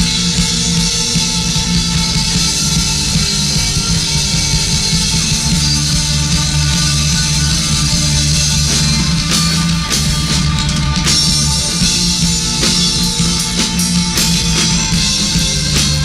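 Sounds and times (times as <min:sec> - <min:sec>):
bass guitar: 0:00.0 - 0:16.0
distorted electric guitar: 0:00.0 - 0:16.0
drum kit with cymbals: 0:00.0 - 0:16.0.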